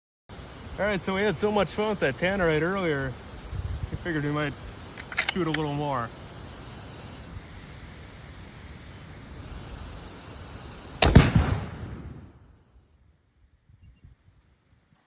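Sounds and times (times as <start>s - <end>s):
outdoor background hiss: 0.3s - 15.0s
rifle shot: 11.0s - 12.4s.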